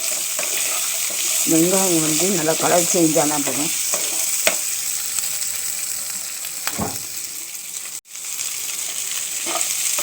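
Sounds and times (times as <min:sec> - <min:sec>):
onions sizzling in a pan: 0:00.0 - 0:10.0
short knock: 0:06.7 - 0:07.2.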